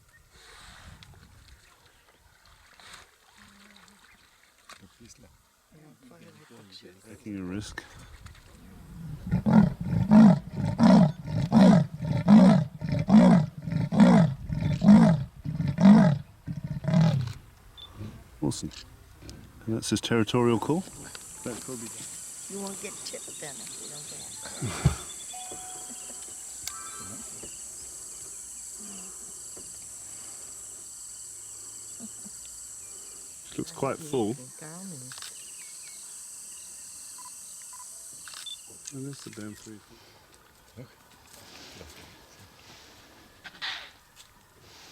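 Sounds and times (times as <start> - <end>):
lion roaring in deep grunts: 9.0 - 17.3
insects shrilling: 20.6 - 39.6
insect pulsing trill: 20.8 - 39.3.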